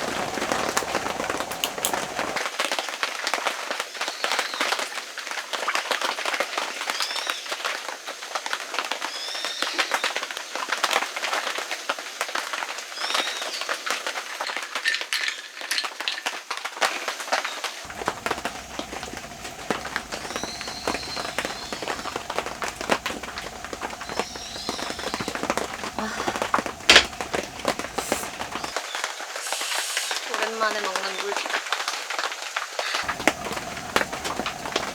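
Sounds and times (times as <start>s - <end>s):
birds chirping: 0.0s - 2.4s, 17.8s - 28.8s, 33.0s - 34.9s
rain pattering: 0.0s - 4.0s, 16.0s - 34.9s
low hum: 17.9s - 28.7s, 33.0s - 34.9s.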